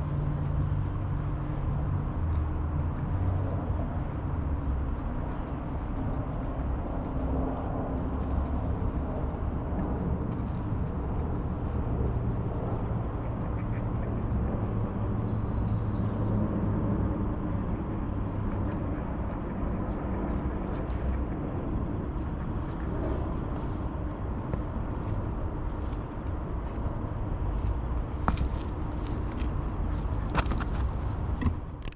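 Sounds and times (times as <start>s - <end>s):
distant road traffic rumble: 0.0s - 31.9s.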